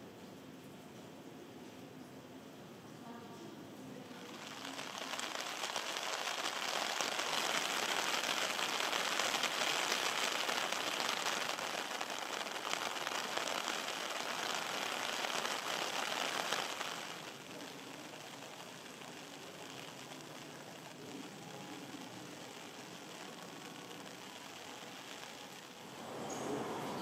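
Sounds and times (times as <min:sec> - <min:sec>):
heavy rain: 0:04.0 - 0:27.0.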